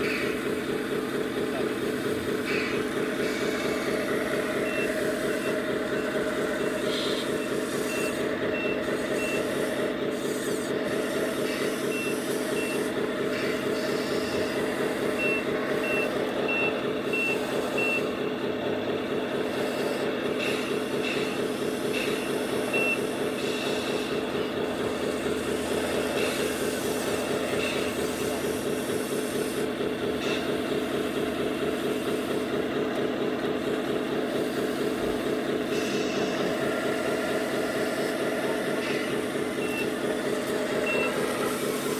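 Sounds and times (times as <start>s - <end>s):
diesel engine running: 0.0s - 41.9s
reversing alarm beeping: 2.7s - 18.4s, 19.5s - 24.6s, 35.8s - 41.9s.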